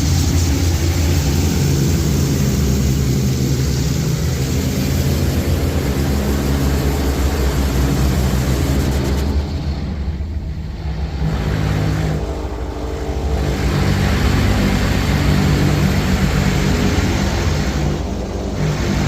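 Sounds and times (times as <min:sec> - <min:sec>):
water jets blasting onto car: 0:00.0 - 0:09.5
car wash machinery hum: 0:00.0 - 0:19.0.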